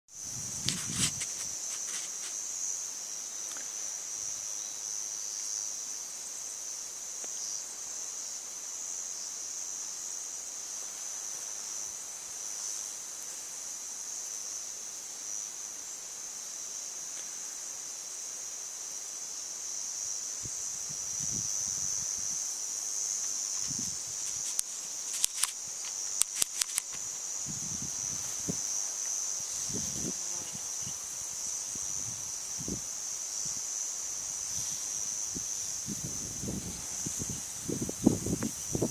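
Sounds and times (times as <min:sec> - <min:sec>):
insects chirring: 0:00.1 - 0:38.9.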